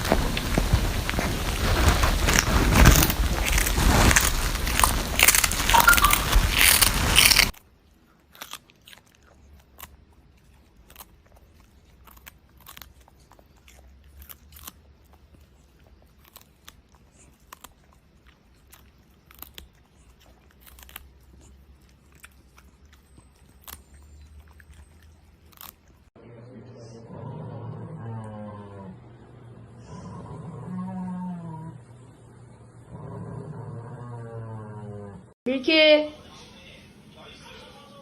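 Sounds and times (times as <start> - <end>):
loud crunching noise: 0.0 - 7.6
pet chewing crunchy food: 0.0 - 26.2.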